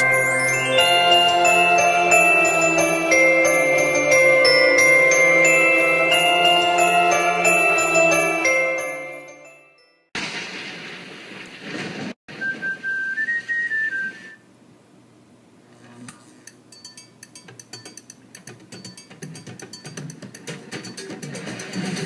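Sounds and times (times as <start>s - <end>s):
bell-like music: 0.0s - 10.1s, 16.7s - 18.0s, 18.8s - 22.0s
whistled phrase: 12.3s - 14.4s.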